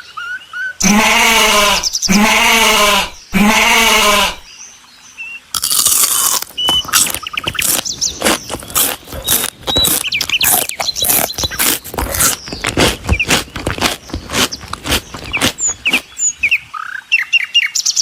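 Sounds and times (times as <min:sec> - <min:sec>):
high bird-like chirps: 0:06.5 - 0:13.4, 0:14.5 - 0:18.0
quick clicks and scratching: 0:06.7 - 0:16.0.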